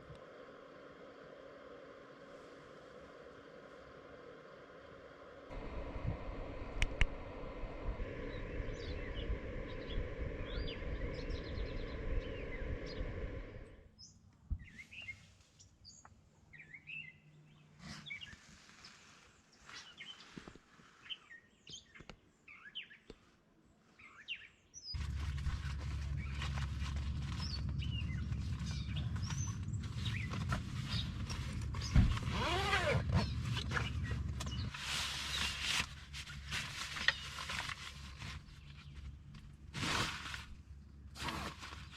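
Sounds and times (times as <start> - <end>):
low background hum: 0.0 - 15.1, 25.0 - 41.9
loud low rumble: 5.5 - 13.9, 25.0 - 36.6
small songbirds chirping: 8.2 - 13.4, 14.0 - 20.4, 24.0 - 32.2, 33.1 - 35.6.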